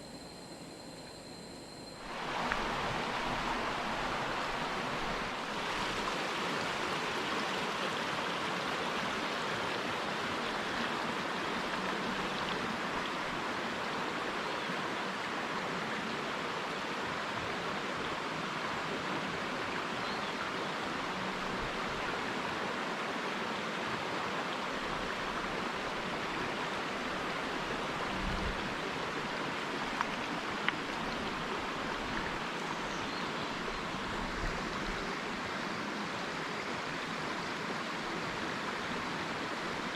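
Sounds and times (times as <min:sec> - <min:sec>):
stream water rushing: 0:01.9 - 0:39.9.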